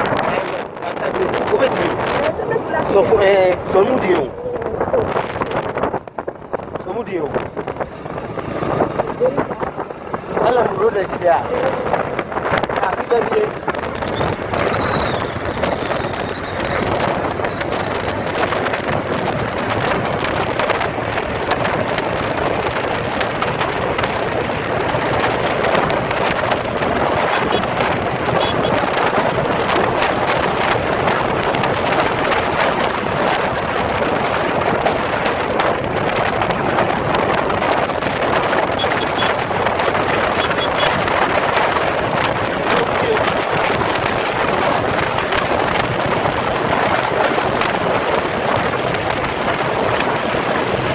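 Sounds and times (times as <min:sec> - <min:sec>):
motorcycle engine droning: 0:00.0 - 0:50.9.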